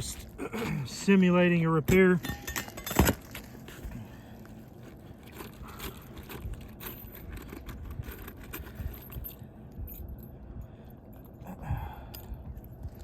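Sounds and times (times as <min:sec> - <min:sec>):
roof shingle clicks and scuffs: 0:01.8 - 0:04.0.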